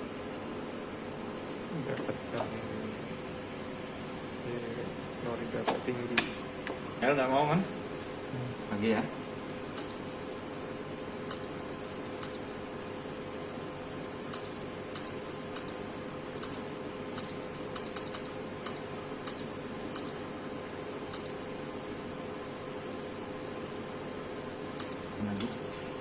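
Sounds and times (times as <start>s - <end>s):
steady hum: 0.0s - 26.0s
keypad beeps: 9.8s - 10.0s, 11.3s - 11.6s, 12.2s - 12.5s, 14.3s - 15.8s, 16.4s - 20.2s, 21.1s - 21.4s, 24.8s - 25.7s.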